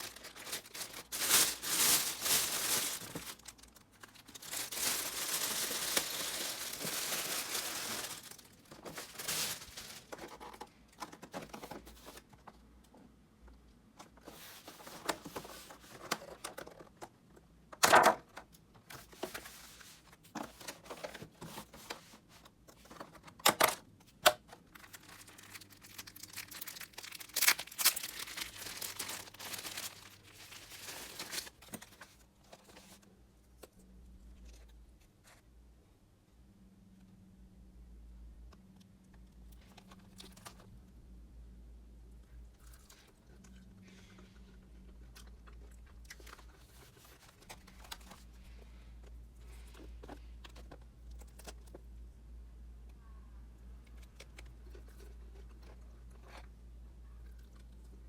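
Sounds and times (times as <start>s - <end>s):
food packaging crinkling: 0.0s - 12.3s, 24.2s - 33.1s, 39.5s - 40.7s, 42.5s - 48.6s.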